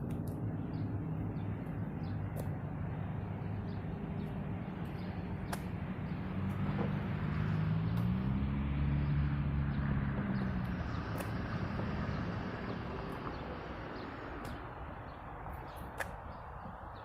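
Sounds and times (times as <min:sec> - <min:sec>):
diesel locomotives passing: 0:00.0 - 0:17.0.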